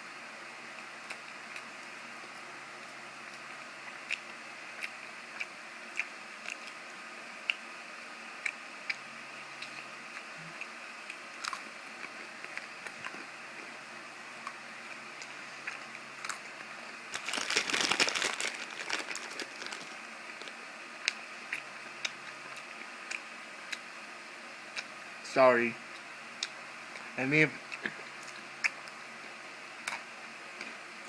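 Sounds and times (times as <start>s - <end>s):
wrapper crinkling: 17.2s - 20.6s.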